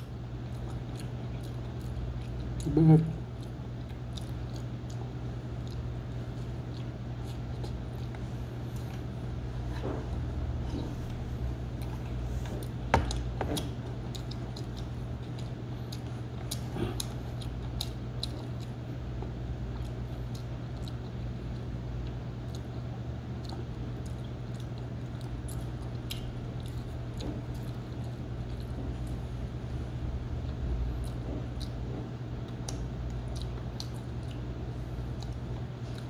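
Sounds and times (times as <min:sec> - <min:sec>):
person chewing food: 0:00.0 - 0:36.0
steady low hum: 0:00.0 - 0:36.0.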